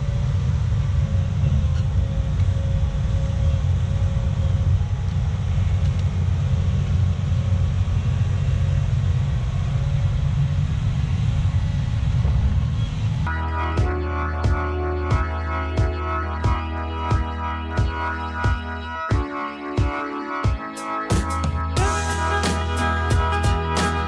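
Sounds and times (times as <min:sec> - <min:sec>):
faint steady whine: 0:00.0 - 0:13.3
diesel engine rumbling: 0:00.0 - 0:18.9.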